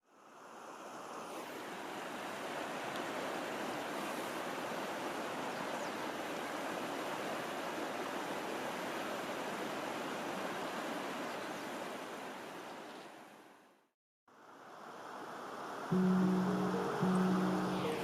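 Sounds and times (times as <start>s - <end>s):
water rushing: 14.5s - 18.0s.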